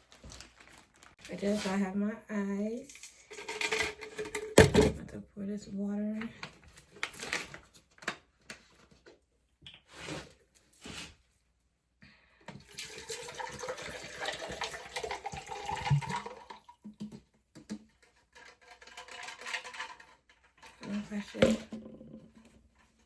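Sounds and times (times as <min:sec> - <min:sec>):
water pouring onto ice: 0:12.6 - 0:16.7.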